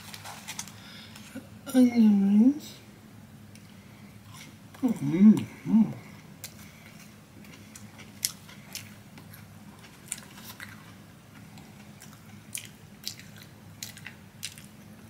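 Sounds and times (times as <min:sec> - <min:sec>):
low steady hum: 0:00.0 - 0:15.0
crunchy chewing: 0:06.4 - 0:15.0.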